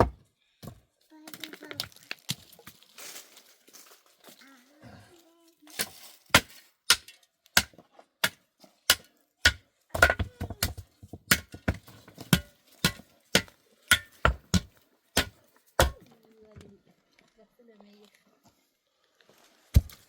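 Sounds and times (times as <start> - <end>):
hand tool chopping strikes: 6.3 - 16.0.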